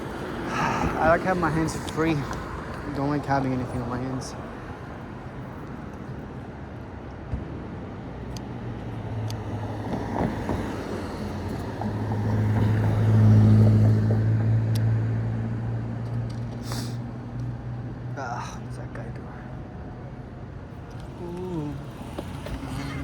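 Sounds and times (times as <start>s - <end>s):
street noise: 0.0s - 23.0s
vehicle engine humming: 8.0s - 23.0s.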